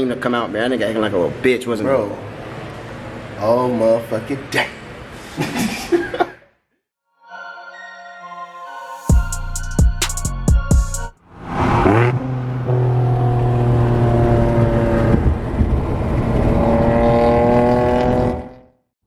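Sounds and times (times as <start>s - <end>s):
hip-hop music with heavy drums: 8.8s - 11.2s.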